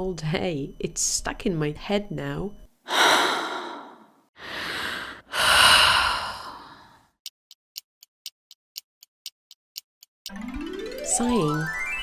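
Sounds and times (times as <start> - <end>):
person sighing: 2.9 - 7.0.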